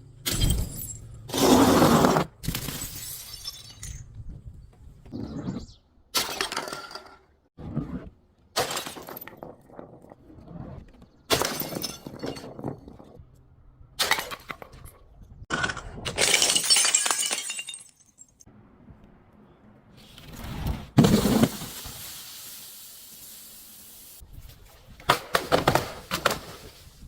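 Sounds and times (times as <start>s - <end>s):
glass bottles smashing: 2.5s - 4.1s, 8.6s - 9.5s, 11.3s - 12.9s, 15.5s - 18.5s.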